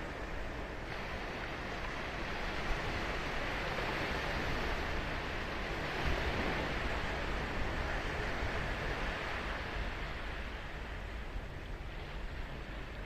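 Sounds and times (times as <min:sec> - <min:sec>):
ocean surf on sandy beach: 0:00.0 - 0:13.0.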